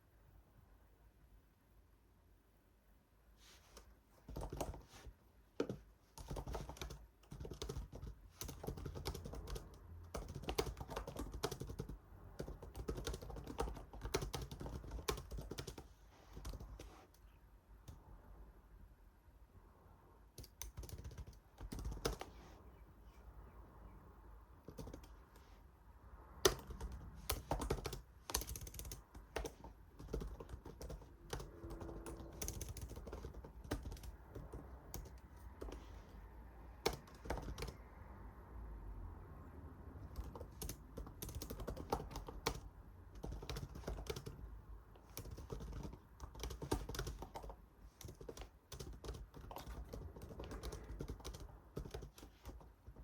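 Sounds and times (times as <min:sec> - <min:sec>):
typing on computer keyboard: 0:04.3 - 0:04.9, 0:05.6 - 0:17.2, 0:20.4 - 0:22.4, 0:24.6 - 0:25.4, 0:26.4 - 0:35.9, 0:36.8 - 0:37.8, 0:40.0 - 0:53.0.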